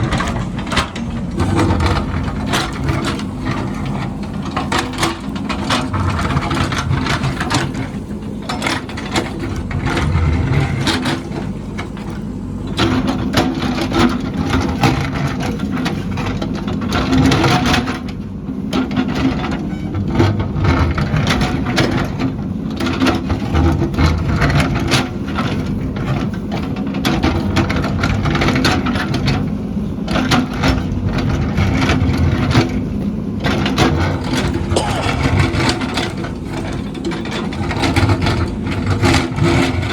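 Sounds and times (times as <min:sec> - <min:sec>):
knocks clanks and crunching: 0:00.0 - 0:08.0
heavy machine engine under load: 0:00.0 - 0:39.9.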